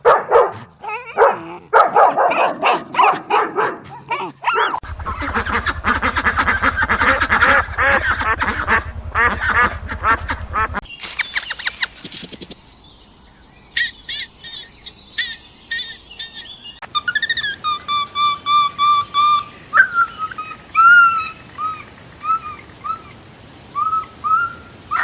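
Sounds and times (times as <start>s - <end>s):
birds quacking: 4.5s - 12.7s
short high bird chirps: 10.8s - 12.8s, 13.7s - 17.6s.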